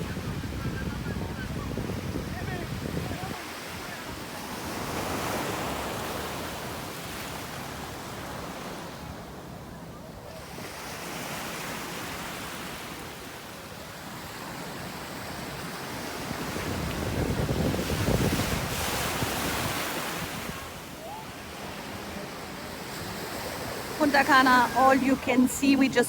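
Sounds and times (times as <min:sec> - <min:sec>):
wind buffeting microphone: 0:00.0 - 0:03.8, 0:16.2 - 0:20.9
surf washing onto beach: 0:00.0 - 0:09.4, 0:10.4 - 0:26.0.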